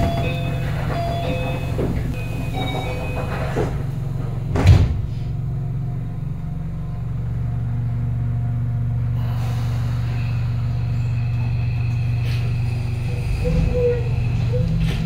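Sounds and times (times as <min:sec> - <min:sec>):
train rumble and hum: 0:00.0 - 0:15.0
door shutting thud: 0:04.5 - 0:05.2.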